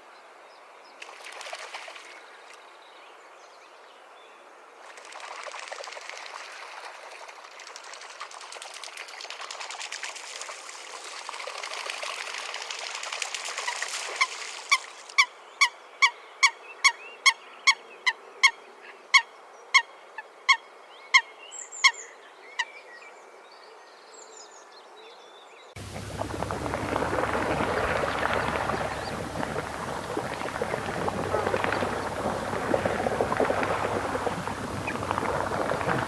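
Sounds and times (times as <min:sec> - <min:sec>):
coot calling: 0:25.8 - 0:36.0.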